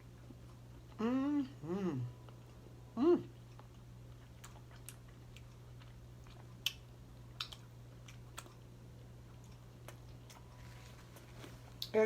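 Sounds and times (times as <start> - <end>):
person chewing food: 0.0 - 11.9
mouth clicks and smacks: 7.4 - 7.6.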